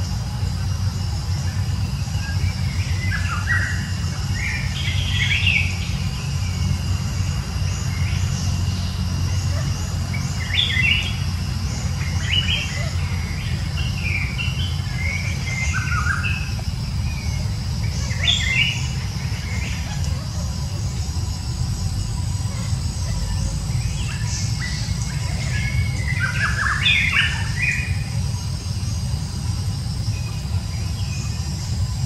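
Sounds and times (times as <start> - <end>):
birds chirping: 0.0 - 32.0
low rumble: 0.0 - 32.0.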